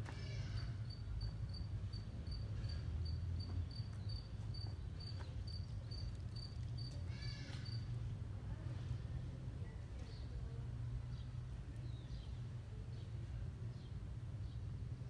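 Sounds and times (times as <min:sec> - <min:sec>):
cricket chirping: 0:00.0 - 0:11.2.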